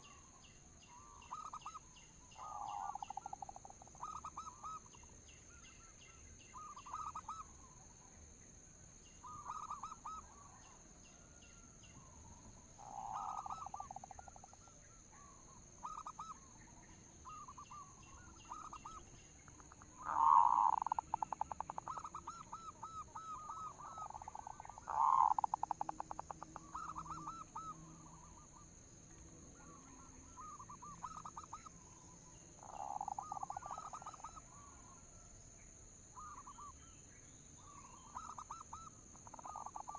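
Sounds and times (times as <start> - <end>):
dove stuttering coo: 20.0 - 27.8.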